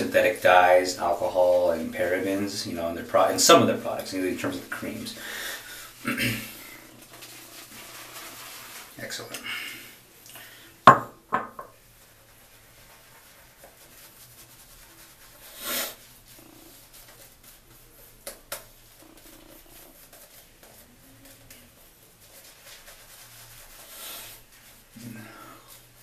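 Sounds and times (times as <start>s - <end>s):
shaving brush swishing lather: 0.0s - 9.4s, 11.8s - 26.0s.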